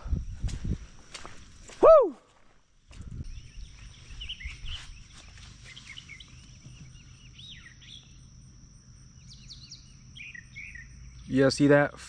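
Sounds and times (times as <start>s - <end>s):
birds chirping: 2.8s - 12.0s
high-pitched insect drone: 2.9s - 12.0s.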